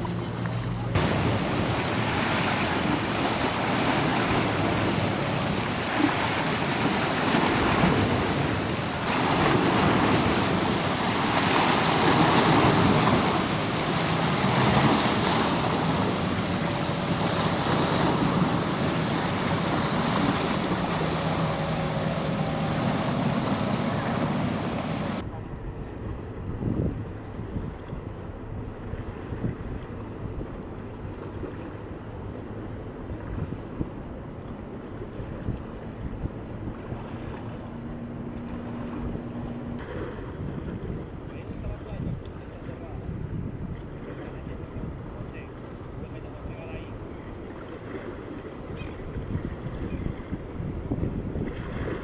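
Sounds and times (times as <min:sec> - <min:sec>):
surf breaking: 0:00.0 - 0:25.2
wind buffeting microphone: 0:00.0 - 0:30.5, 0:35.1 - 0:46.0, 0:48.2 - 0:52.0
boat engine droning: 0:00.0 - 0:52.0.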